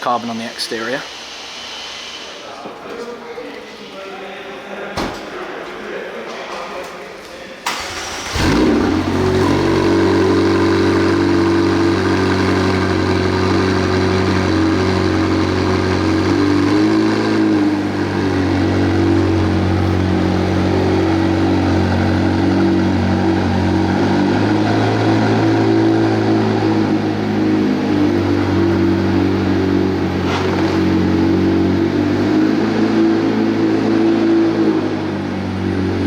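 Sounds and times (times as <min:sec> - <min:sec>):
car engine idling: 0:07.7 - 0:36.0.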